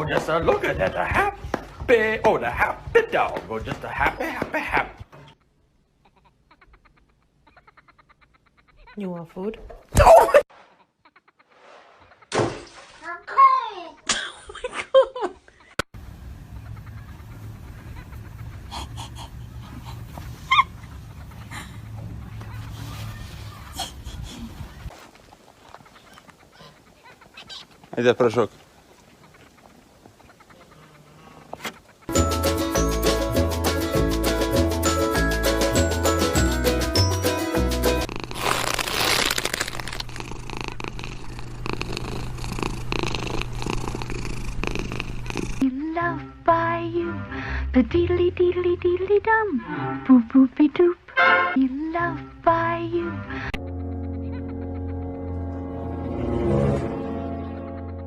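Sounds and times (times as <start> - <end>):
music: 32.1 - 38.1, 45.8 - 50.2, 51.2 - 58.0
cat purring: 39.8 - 45.6.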